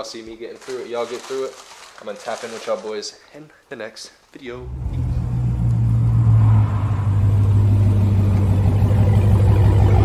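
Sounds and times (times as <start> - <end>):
car engine exhaust rumble: 4.6 - 10.0.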